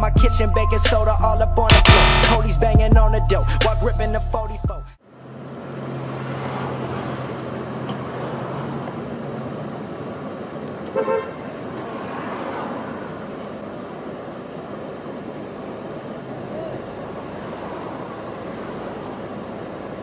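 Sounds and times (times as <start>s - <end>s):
street traffic: 0.0s - 20.0s
car horn toot: 1.7s - 2.6s, 10.9s - 11.4s.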